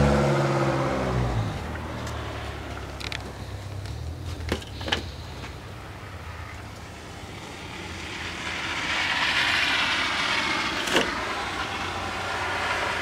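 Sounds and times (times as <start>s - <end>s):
vehicle engine moving off: 0.0s - 13.0s.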